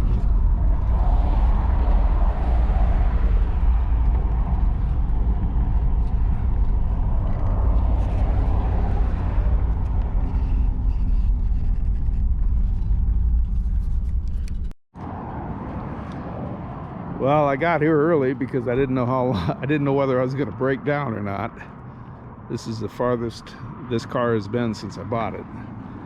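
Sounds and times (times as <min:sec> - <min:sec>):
car engine rumbling: 0:00.0 - 0:20.5
road noise: 0:00.0 - 0:26.0.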